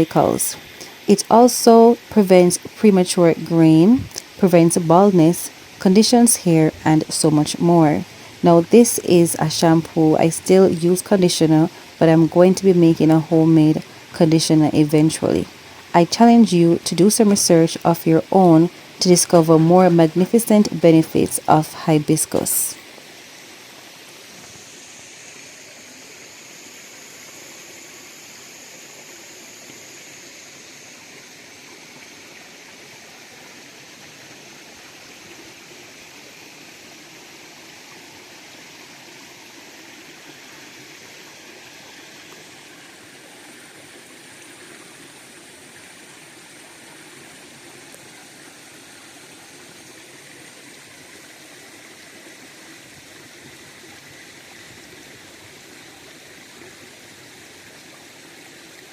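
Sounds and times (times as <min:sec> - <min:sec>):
river water rushing: 0:03.6 - 0:25.9.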